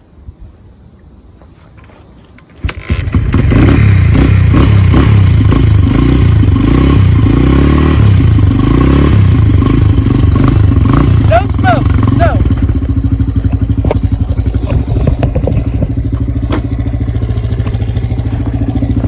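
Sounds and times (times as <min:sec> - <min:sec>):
motorcycle kick-start: 0:02.4 - 0:07.3, 0:09.3 - 0:19.0
motorcycle engine revving: 0:02.6 - 0:19.0.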